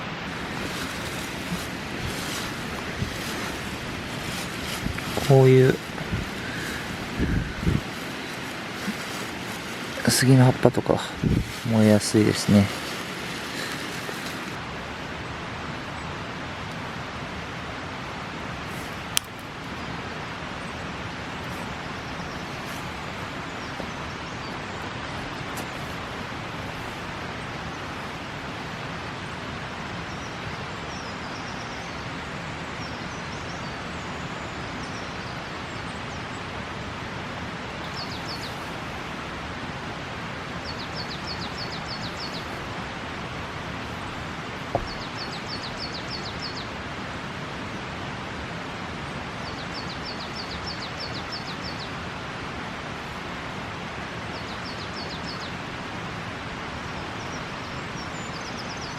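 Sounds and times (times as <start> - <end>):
rain falling: 0.0 - 31.3, 35.5 - 58.2
wood fire crackle: 0.3 - 14.6, 18.7 - 19.7.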